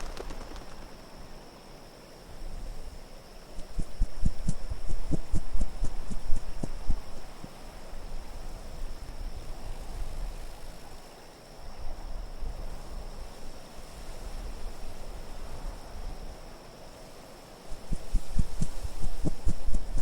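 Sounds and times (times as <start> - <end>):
wind blowing with low rumble: 0.0 - 11.0, 17.7 - 20.0.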